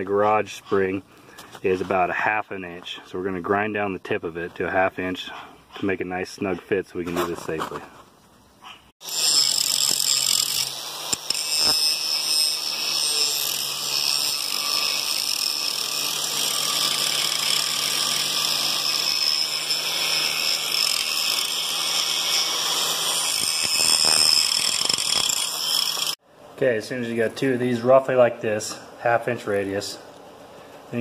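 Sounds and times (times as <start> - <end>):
power grinder grinding metal: 9.0 - 26.2.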